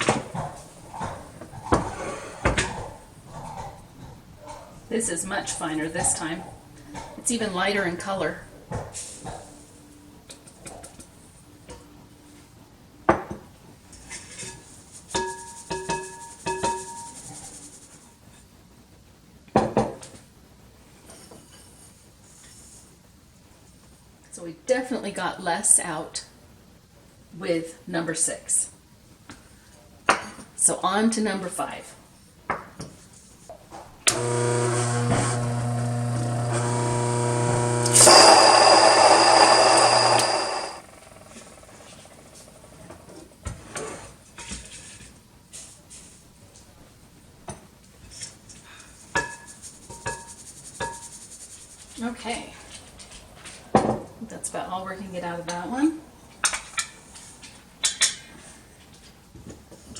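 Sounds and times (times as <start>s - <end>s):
electric grain mill motor humming: 34.1s - 42.0s.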